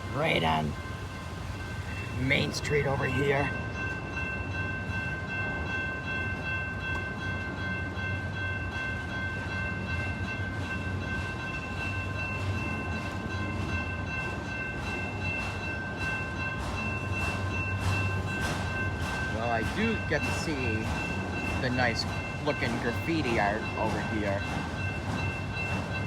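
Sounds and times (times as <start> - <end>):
freight train rumbling: 0.0 - 26.0
wheels clacking over rail joints: 12.5 - 26.0.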